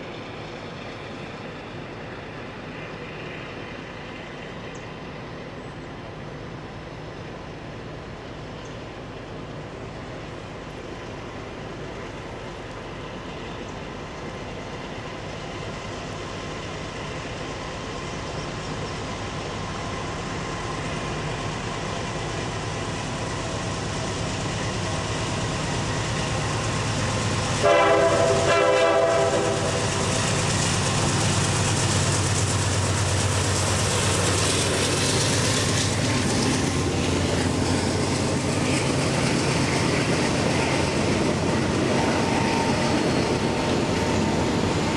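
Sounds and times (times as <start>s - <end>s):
diesel locomotive engine: 0.0s - 44.9s
train wheel noise: 0.0s - 44.9s
train horn blast: 27.5s - 30.0s.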